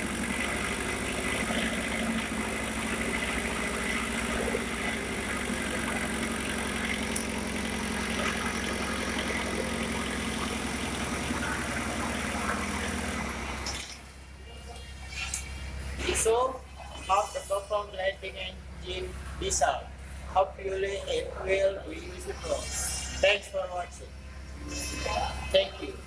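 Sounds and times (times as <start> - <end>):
diesel engine idling: 0.0 - 14.7.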